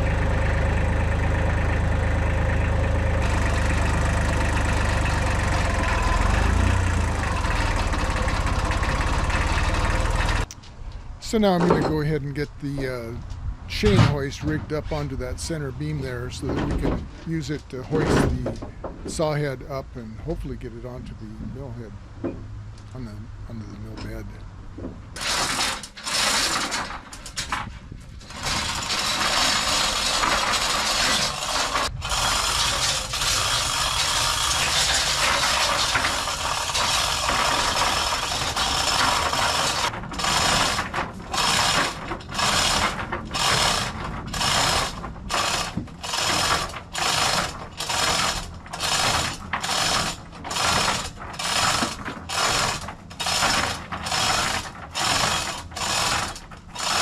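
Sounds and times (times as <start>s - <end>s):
chain rattling through hoist: 3.2s - 10.5s, 25.2s - 57.0s
hand chain pulls: 25.2s - 57.0s
ratchet pawl clicking: 28.3s - 57.0s.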